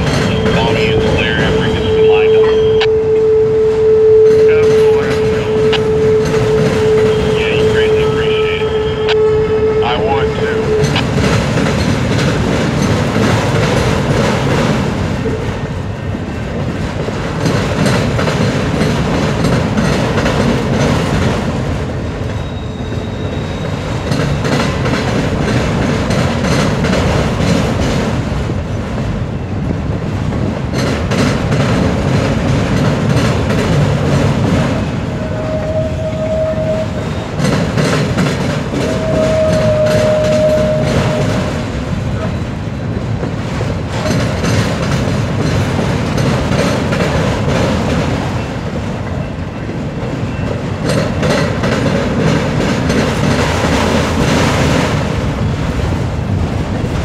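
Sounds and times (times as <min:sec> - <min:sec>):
wheels clacking over rail joints: 0:00.0 - 0:01.7, 0:04.2 - 0:09.4, 0:10.4 - 0:29.2, 0:30.0 - 0:57.0
high tones: 0:00.0 - 0:11.1
freight cars rumbling past: 0:00.0 - 0:57.0.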